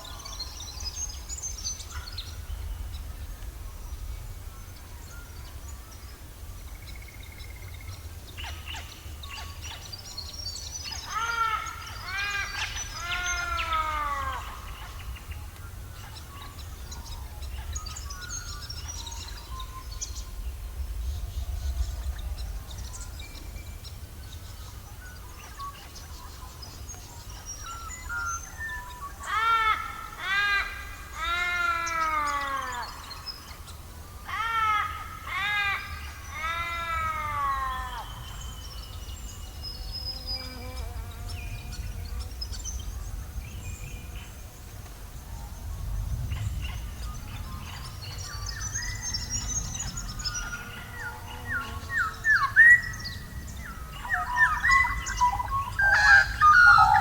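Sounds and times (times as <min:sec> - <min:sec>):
long arching bird calls: 0:00.0 - 0:57.0
small birds chirping: 0:00.0 - 0:57.0
steady low rumble: 0:00.2 - 0:09.3, 0:12.8 - 0:28.4, 0:41.4 - 0:51.2.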